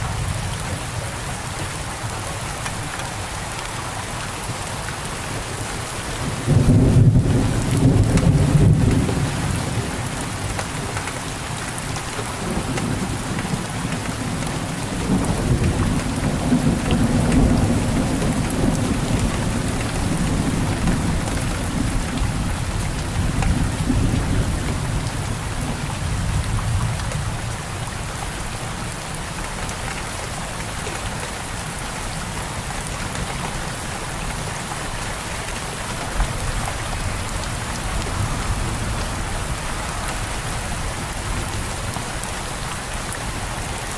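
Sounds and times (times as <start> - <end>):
rain pattering: 0.0 - 43.9
thunder rumbling: 6.2 - 11.0.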